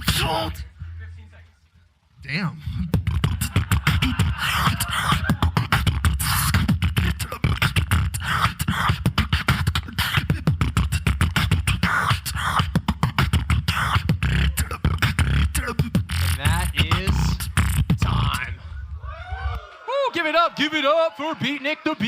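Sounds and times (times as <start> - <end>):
deep bass line: 0.0 - 1.2, 2.2 - 19.1
beatboxing clicks and snare hits: 2.8 - 18.5.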